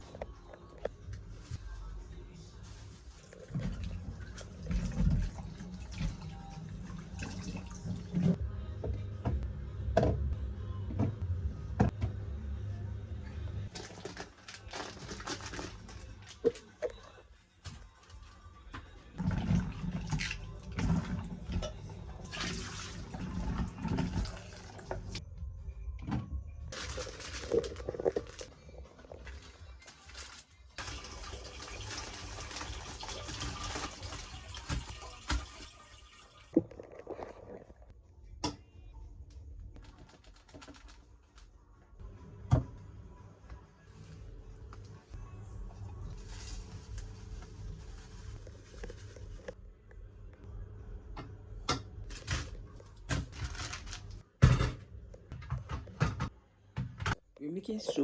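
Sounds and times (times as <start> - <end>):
water running and splashing: 30.8 - 36.6.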